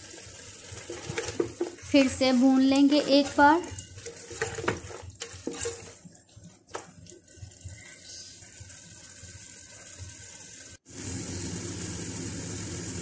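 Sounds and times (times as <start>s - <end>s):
meat sizzling: 0.0s - 13.0s
spatula scraping a pot: 0.6s - 6.4s.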